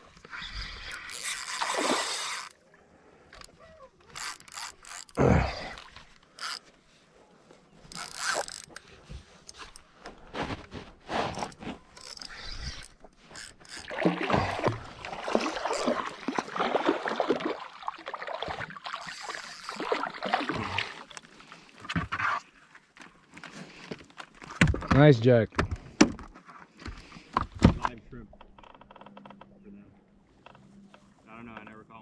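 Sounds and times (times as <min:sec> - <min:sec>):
fishing reel cranking: 0:00.4 - 0:02.6, 0:03.4 - 0:05.2, 0:06.3 - 0:06.7, 0:07.9 - 0:08.9, 0:12.0 - 0:13.9, 0:19.0 - 0:19.8.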